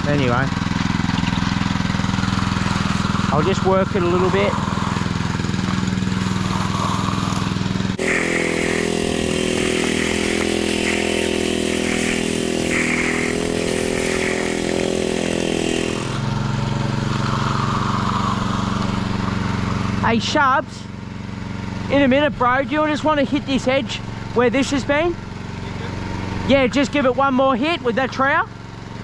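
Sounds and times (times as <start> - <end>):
power trowel engine running: 0.0 - 22.1.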